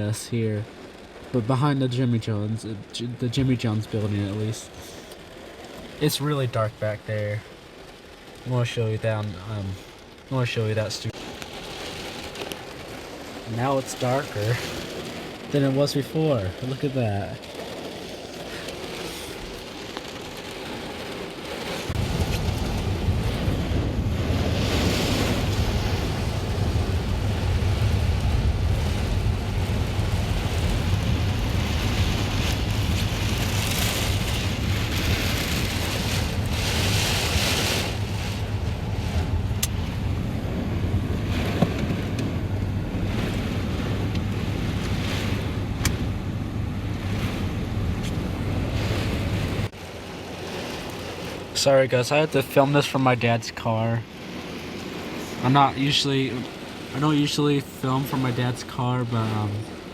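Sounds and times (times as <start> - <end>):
wind buffeting microphone: 21.9 - 49.8.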